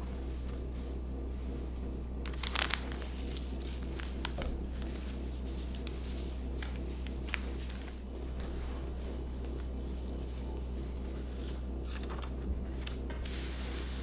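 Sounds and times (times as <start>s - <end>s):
steady low hum: 0.0s - 14.0s
packaging crinkling and rustling: 2.3s - 8.5s.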